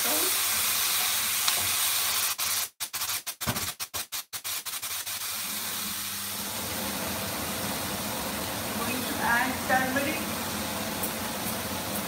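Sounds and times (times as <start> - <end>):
potatoes sizzling in oil: 0.0 - 2.6, 5.1 - 12.0.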